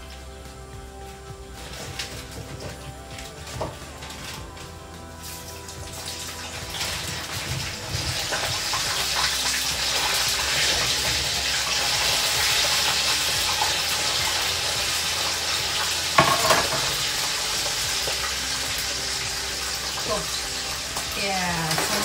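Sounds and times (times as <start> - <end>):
food sizzling in a pan: 1.1 - 22.0.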